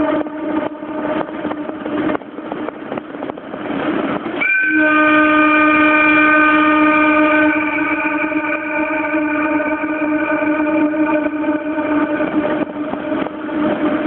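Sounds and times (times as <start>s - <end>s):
train air horn blasts: 0.0s - 2.2s, 4.4s - 14.0s
wind and road noise: 0.0s - 14.0s.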